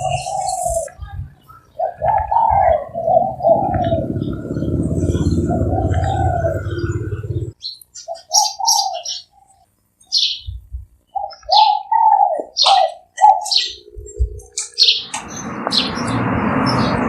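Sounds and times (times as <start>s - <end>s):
dove cooing: 0.0s - 9.6s, 11.1s - 15.0s
small birds chirping: 0.0s - 17.0s.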